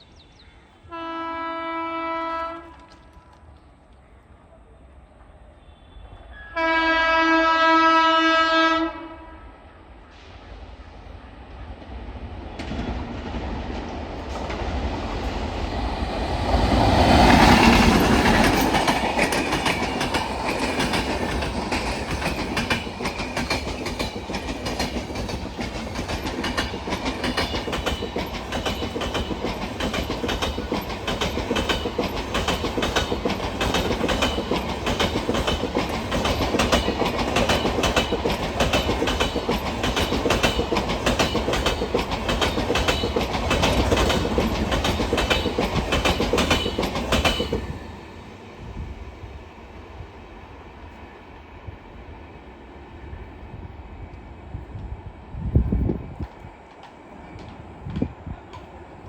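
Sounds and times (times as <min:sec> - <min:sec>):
locomotive passing: 0:10.5 - 0:59.0
train wheels clattering over rails: 0:12.4 - 0:48.2.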